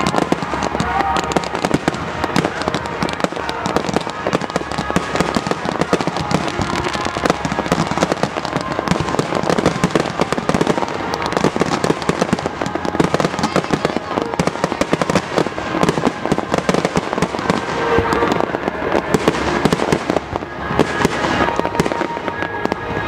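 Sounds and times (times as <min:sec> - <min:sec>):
fireworks launching and bursting: 0:00.0 - 0:23.0.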